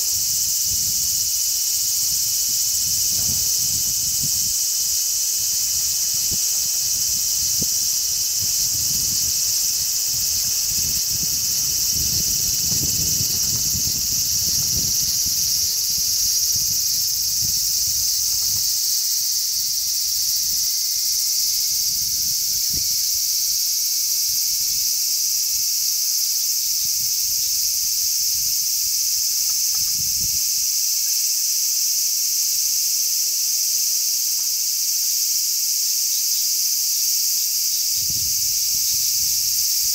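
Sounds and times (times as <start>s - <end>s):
wind rumble on microphone: 0.0s - 18.9s, 21.7s - 23.4s, 29.7s - 30.6s, 37.9s - 39.9s
cicadas buzzing: 0.0s - 39.9s.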